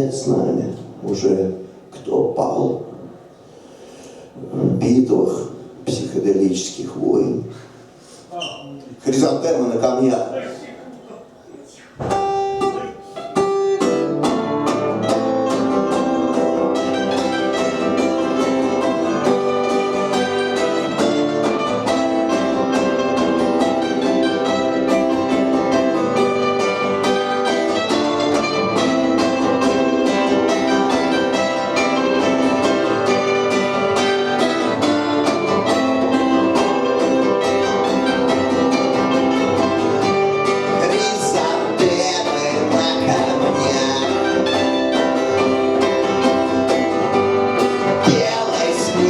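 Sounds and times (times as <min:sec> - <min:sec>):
guitar: 0:12.0 - 0:49.0
live band playing: 0:12.0 - 0:49.0.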